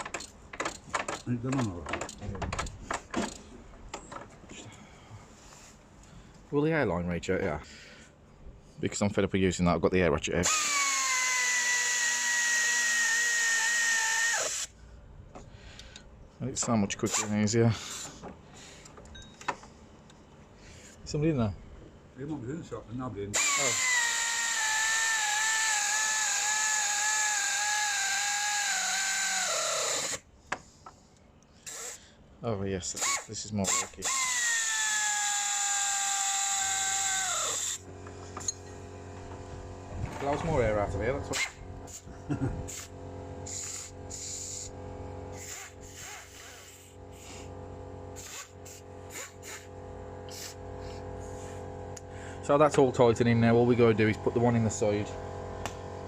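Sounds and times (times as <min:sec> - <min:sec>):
pneumatic air ratchet whining: 0:00.0 - 0:03.5, 0:10.4 - 0:14.8, 0:17.0 - 0:19.6, 0:23.3 - 0:30.8, 0:31.5 - 0:32.1, 0:32.9 - 0:38.8, 0:41.3 - 0:52.1
steady low hum: 0:14.5 - 0:23.4, 0:37.1 - 0:56.0
exhaust air hiss: 0:17.2 - 0:18.9, 0:41.5 - 0:52.6.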